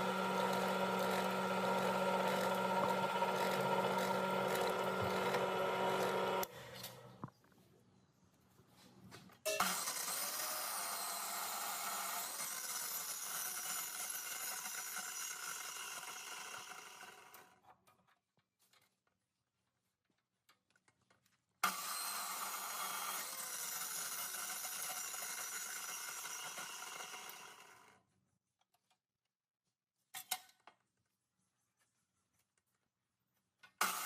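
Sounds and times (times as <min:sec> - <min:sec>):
power tool working: 0:00.0 - 0:06.5.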